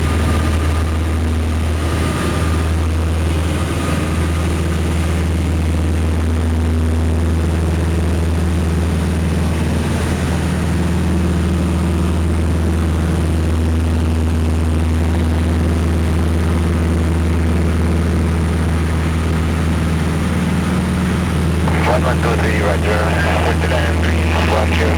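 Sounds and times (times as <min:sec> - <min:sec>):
aircraft engines droning: 0:20.6 - 0:24.9.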